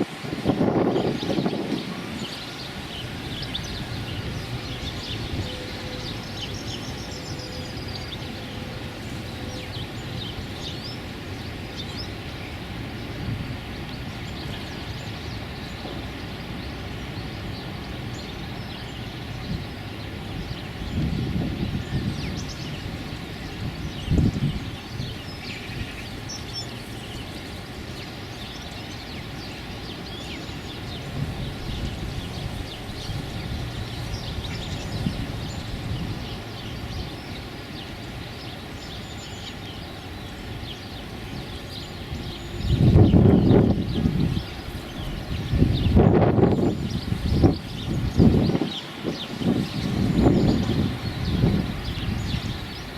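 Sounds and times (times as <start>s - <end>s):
small birds chirping: 0.0s - 52.9s
wind on microphone: 0.0s - 52.9s.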